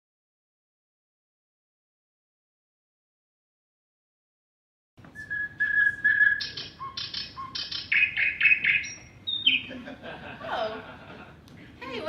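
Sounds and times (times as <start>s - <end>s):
short chirps and tweets: 5.2s - 9.7s
bird-like whistling: 5.2s - 9.8s.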